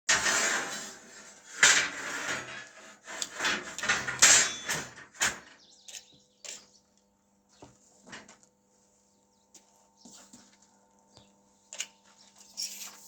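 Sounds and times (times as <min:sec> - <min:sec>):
knocks clatters and scrapes: 0:00.1 - 0:05.6.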